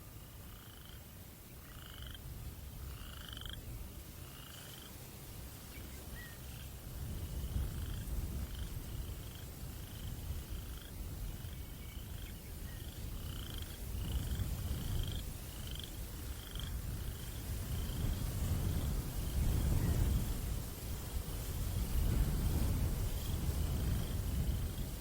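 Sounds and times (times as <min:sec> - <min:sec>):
frog or insect buzzy call: 0:00.0 - 0:05.0, 0:06.1 - 0:18.2
low breeze rumble: 0:00.0 - 0:25.0.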